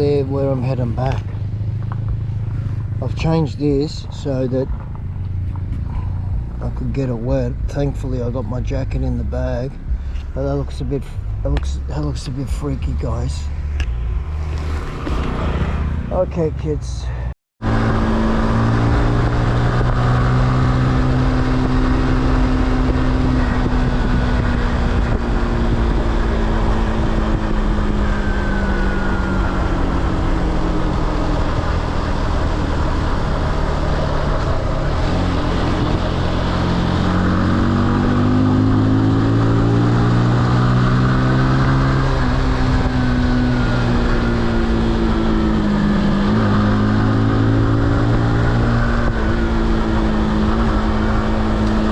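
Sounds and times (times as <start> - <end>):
motorcycle engine revving: 0.0 - 16.8, 17.6 - 51.9
wind noise on microphone: 17.6 - 51.9.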